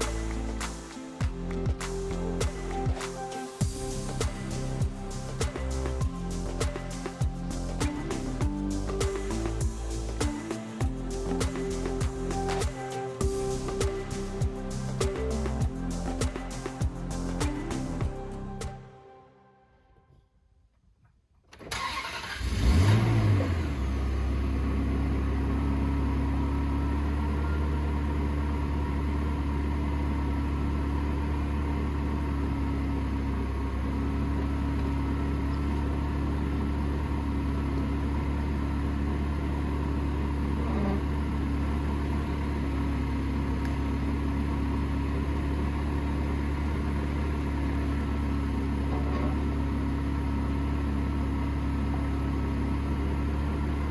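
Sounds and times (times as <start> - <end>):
car engine starter cranking: 21.6 - 23.1.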